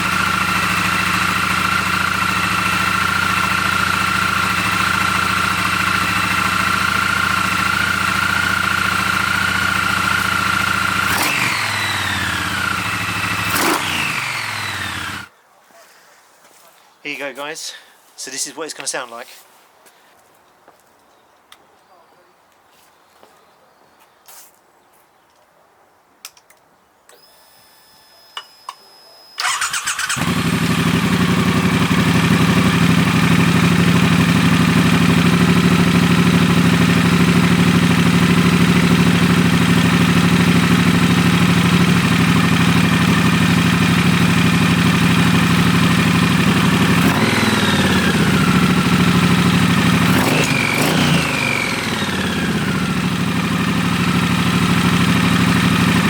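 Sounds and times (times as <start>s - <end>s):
motorcycle engine starting and idling: 0.0s - 15.3s, 29.4s - 56.0s
motorcycle throttle blips: 28.4s - 56.0s.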